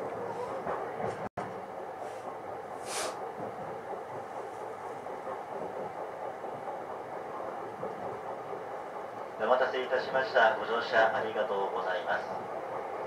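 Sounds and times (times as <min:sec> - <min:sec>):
train wheels rumbling on rails: 0:00.0 - 0:13.0
brief hiss: 0:02.8 - 0:03.2.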